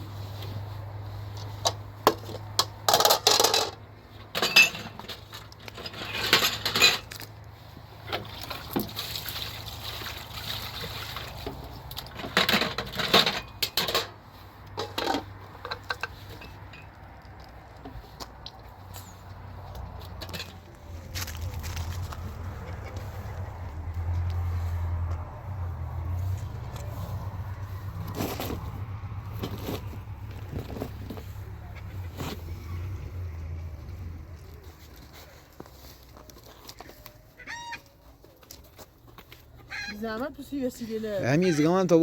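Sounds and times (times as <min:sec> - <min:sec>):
objects clinking and scraping: 0:01.4 - 0:07.4, 0:11.5 - 0:18.1, 0:18.8 - 0:23.3.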